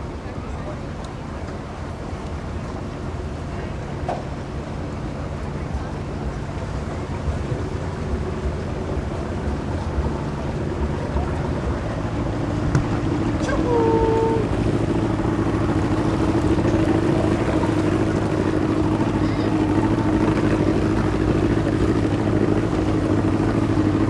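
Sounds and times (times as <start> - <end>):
motorboat engine hum: 0.0 - 24.0
brief high tone: 13.4 - 14.6.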